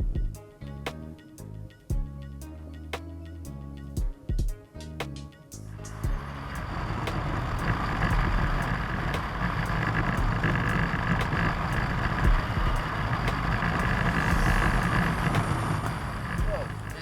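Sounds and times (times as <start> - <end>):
vehicle engine running: 5.7 - 17.0.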